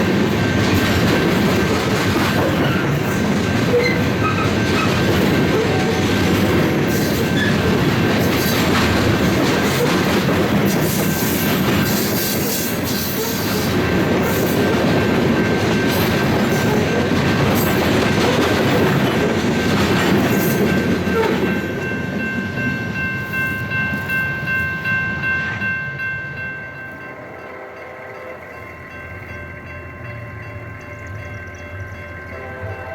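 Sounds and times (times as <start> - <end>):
crossing bell ringing: 0.0 - 32.9
train wheels clattering on rails: 0.0 - 32.9.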